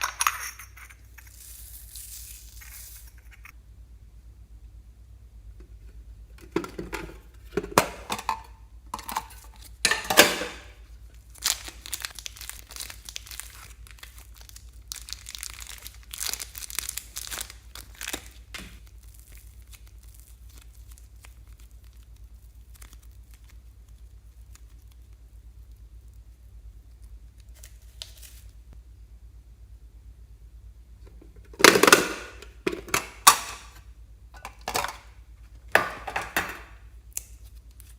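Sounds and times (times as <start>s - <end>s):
plastic bags crinkling: 9.2s - 25.1s.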